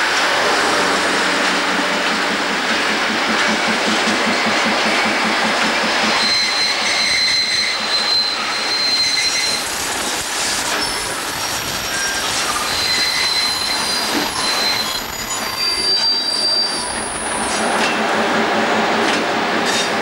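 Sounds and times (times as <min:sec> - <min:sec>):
train rolling over rails: 0:00.0 - 0:20.0
wheels squealing: 0:11.8 - 0:17.6.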